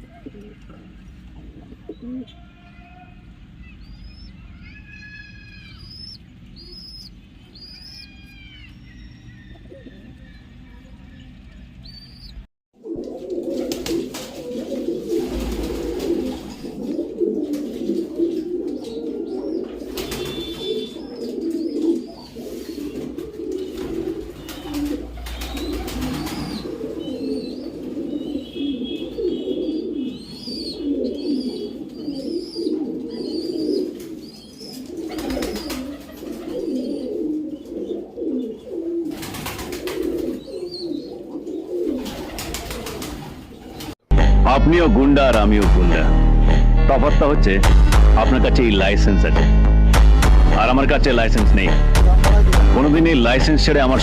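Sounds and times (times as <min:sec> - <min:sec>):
pigeons cooing: 0:00.0 - 0:02.4, 0:03.4 - 0:44.0.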